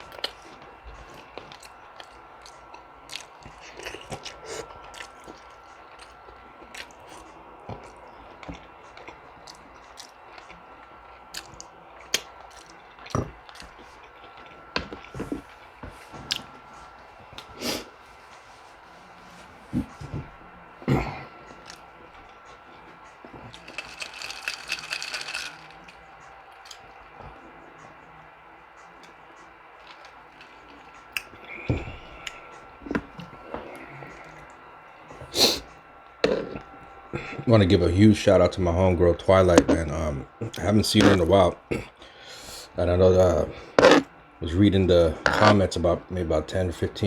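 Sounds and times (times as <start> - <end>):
chewing with wet mouth smacks: 0.0 - 16.5
food crunching: 0.0 - 18.0, 19.7 - 37.7, 38.4 - 46.0.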